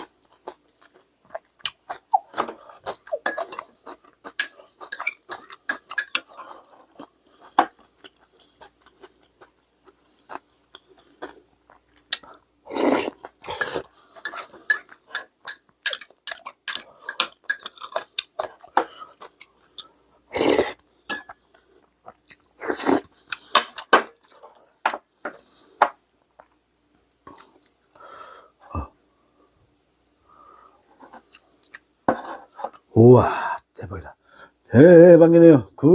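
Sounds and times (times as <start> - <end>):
chewing: 0.0 - 15.3
utensils clicking on dishes: 4.4 - 6.3, 13.5 - 17.7.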